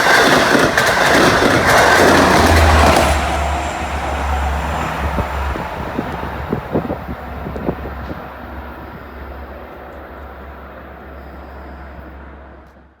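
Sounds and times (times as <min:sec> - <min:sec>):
train wheels clacking: 0:00.0 - 0:12.9
train rumbling: 0:00.0 - 0:13.0.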